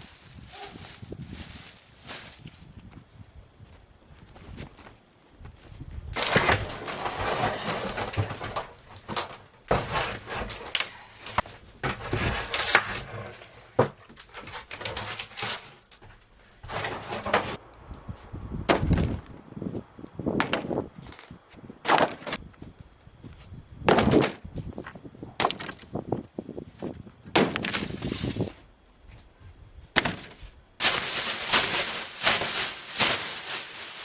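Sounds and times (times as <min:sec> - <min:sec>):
panels and wood scraping and crunching: 0:05.7 - 0:19.4, 0:26.8 - 0:34.0
sharp cracks and knocks: 0:06.2 - 0:17.6, 0:20.4 - 0:22.4, 0:25.4 - 0:25.9, 0:27.3 - 0:28.4, 0:30.0 - 0:34.0.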